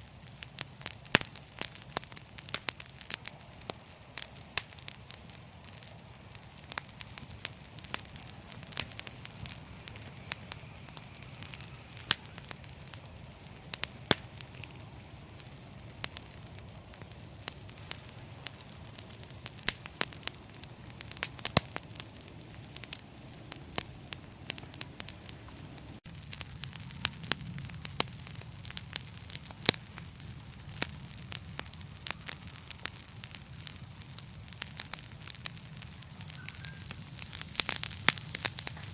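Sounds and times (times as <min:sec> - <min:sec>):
low rumble of flames: 0:00.0 - 0:38.9
wood fire crackling: 0:00.0 - 0:38.9
sharp pops and snaps: 0:00.4 - 0:20.3.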